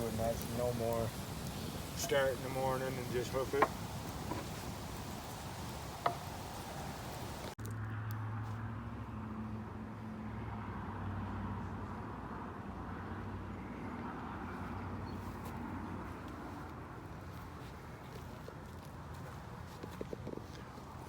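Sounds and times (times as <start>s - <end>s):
faint hiss: 0.0s - 7.6s.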